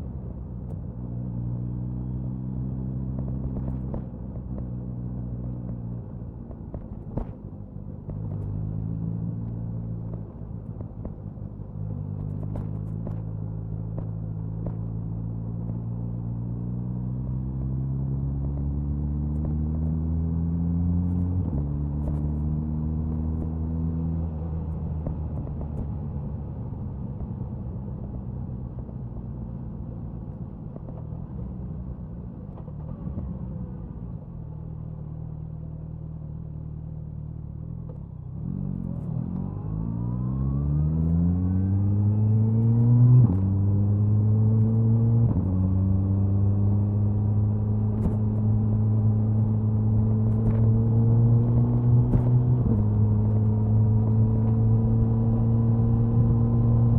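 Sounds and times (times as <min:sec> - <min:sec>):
motorcycle exhaust accelerating: 0:40.9 - 0:56.9.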